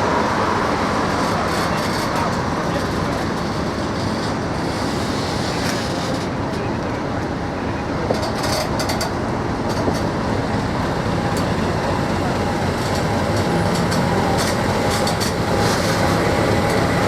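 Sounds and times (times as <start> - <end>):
diesel locomotive passing: 0.0 - 17.0.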